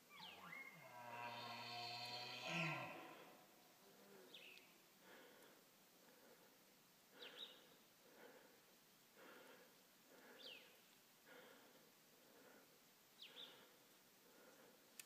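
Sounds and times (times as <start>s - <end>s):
faint bird chirps: 0.0s - 2.3s
soft breathy puffs: 3.1s - 15.0s.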